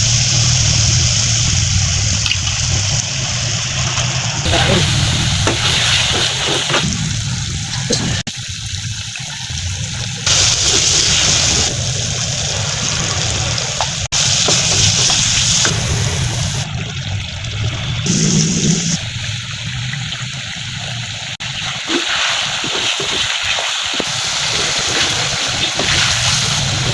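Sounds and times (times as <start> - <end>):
food sizzling: 4.4 - 16.7, 21.2 - 26.9.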